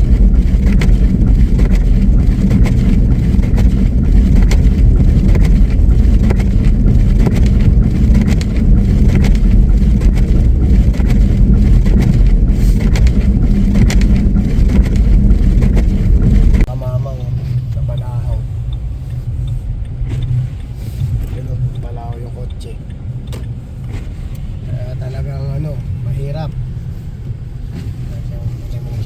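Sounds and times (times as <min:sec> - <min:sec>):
truck engine and tyres rumbling: 0:00.0 - 0:29.0
small knocks and ticks: 0:18.7 - 0:24.5.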